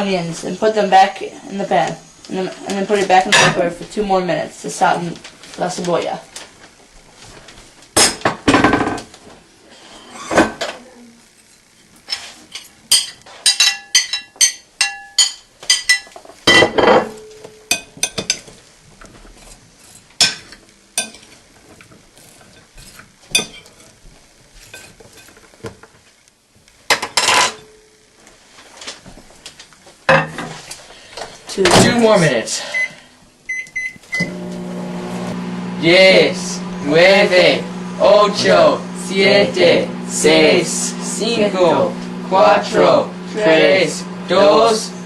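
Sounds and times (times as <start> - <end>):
dishes clinking: 12.1 - 18.5, 19.9 - 21.3, 22.5 - 23.8, 26.9 - 27.9, 30.1 - 30.6.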